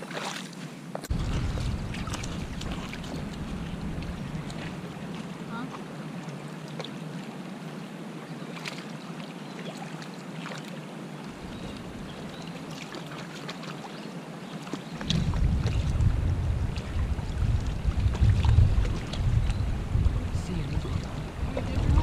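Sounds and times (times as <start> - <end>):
steady wind hiss: 0.8 - 6.2, 14.3 - 22.0
wind gusts buffeting microphone: 1.1 - 6.0, 11.4 - 12.4, 15.0 - 22.0.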